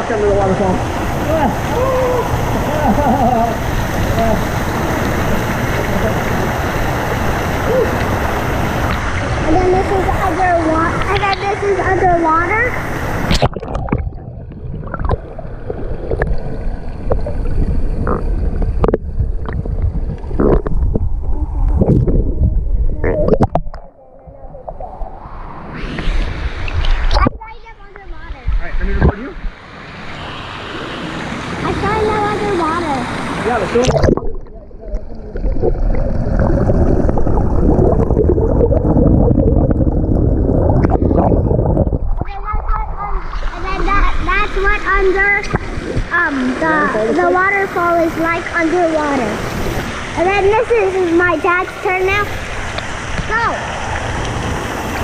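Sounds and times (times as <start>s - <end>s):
muffled underwater water rumble: 0.0s - 29.6s, 31.7s - 55.0s
bubbles gurgling and popping: 13.3s - 25.2s, 33.8s - 49.4s.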